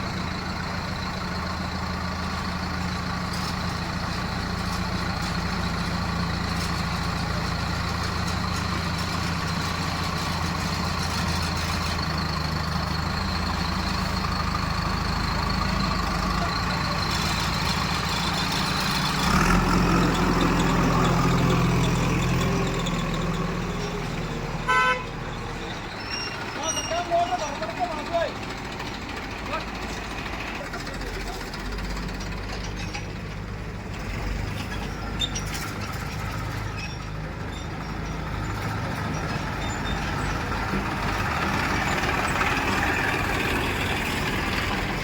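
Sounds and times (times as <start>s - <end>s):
diesel machinery engine running: 0.0s - 45.0s
vehicle horn beep: 24.6s - 25.2s.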